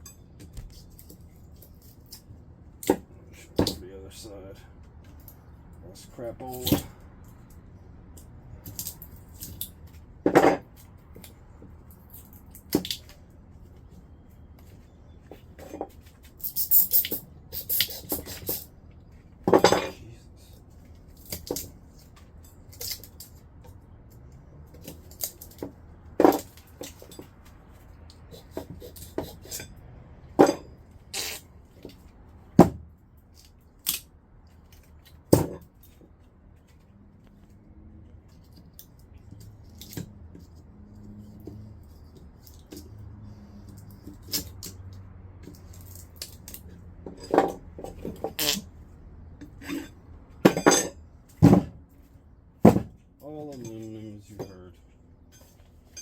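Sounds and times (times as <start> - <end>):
metal clinks and knocks: 14.7 - 20.0, 20.8 - 31.0, 38.3 - 48.6, 49.4 - 51.8, 52.6 - 56.0.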